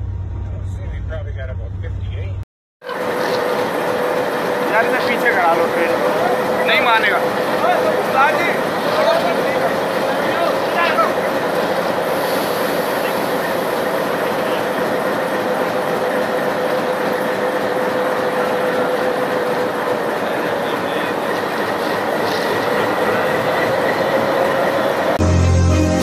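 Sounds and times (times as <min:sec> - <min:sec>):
locomotive rail rumble and rattle: 0:00.0 - 0:25.2
music: 0:25.2 - 0:26.0.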